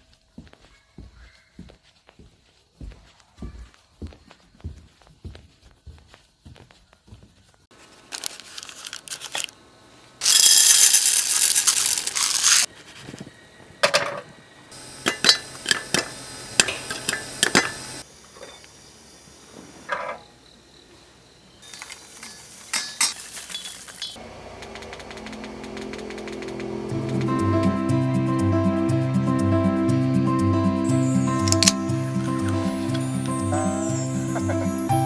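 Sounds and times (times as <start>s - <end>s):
plastic ripping: 7.8s - 9.5s, 10.2s - 12.7s
plastic packaging crinkling: 7.8s - 9.6s, 10.2s - 12.7s
small clicks: 31.4s - 31.8s.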